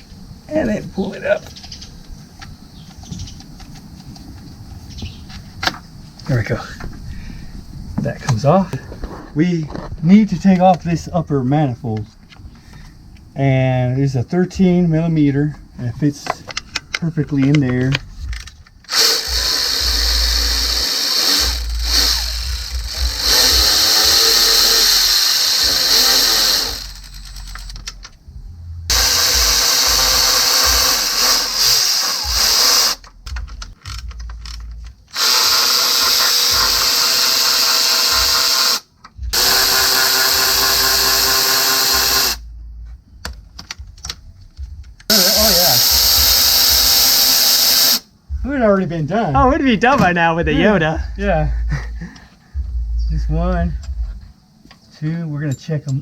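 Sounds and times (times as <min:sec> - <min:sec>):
cordless power tool whirring: 0:18.8 - 0:27.8, 0:28.9 - 0:33.0, 0:35.1 - 0:42.4, 0:45.1 - 0:48.0.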